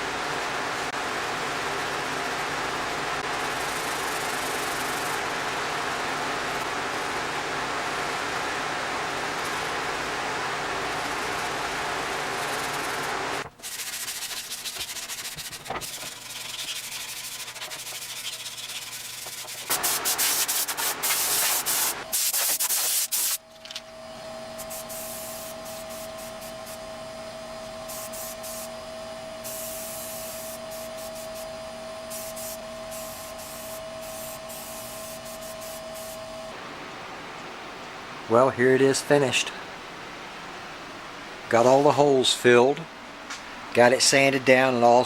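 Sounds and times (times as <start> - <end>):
machine whine with hiss: 0.0 - 39.7
sanding steel panel: 11.0 - 23.4, 32.1 - 36.2.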